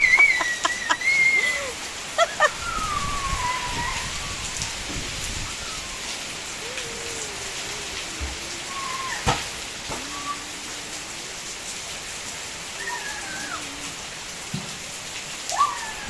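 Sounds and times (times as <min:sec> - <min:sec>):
rain pattering: 0:00.0 - 0:16.0
high drawn-out voice-like call: 0:05.4 - 0:11.8, 0:12.6 - 0:14.3.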